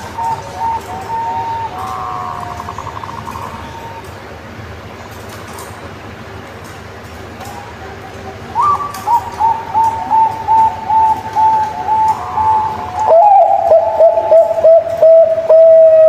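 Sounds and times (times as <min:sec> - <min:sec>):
dove cooing: 0:00.0 - 0:04.1, 0:07.4 - 0:16.0
faint background hiss: 0:00.0 - 0:16.0.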